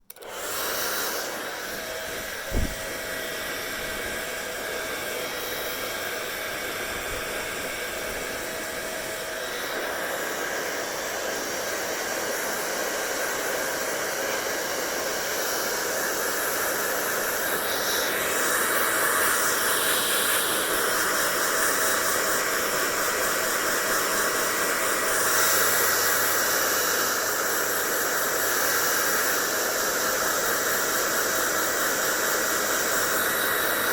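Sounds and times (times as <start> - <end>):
hair dryer running: 0.0 - 33.9
thump: 2.4 - 2.9.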